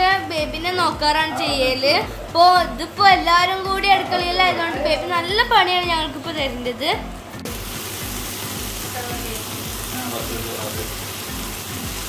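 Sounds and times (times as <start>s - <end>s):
food sizzling in a pot: 7.4s - 12.0s.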